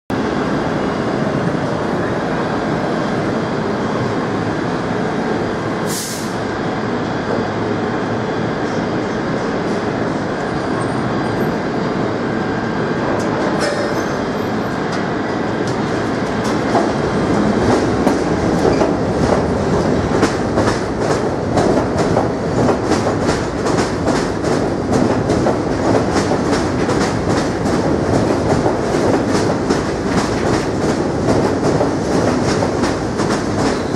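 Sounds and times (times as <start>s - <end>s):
subway train wheels rumbling: 0.1s - 33.9s
wheels clacking over rail joints: 13.2s - 33.9s.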